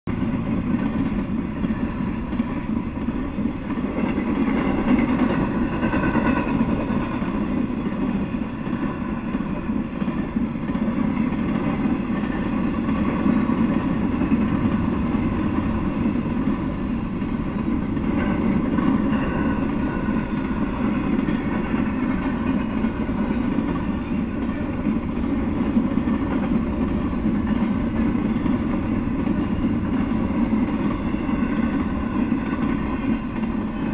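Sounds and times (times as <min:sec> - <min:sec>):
freight train wheels rumbling: 0:00.0 - 0:33.9.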